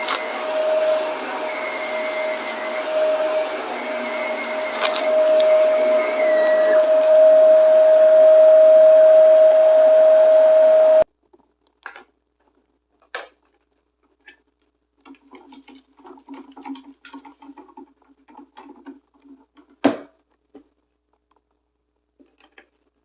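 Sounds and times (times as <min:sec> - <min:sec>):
light crackles and ticks: 0:00.0 - 0:07.2
vacuum cleaner whining: 0:00.0 - 0:11.0.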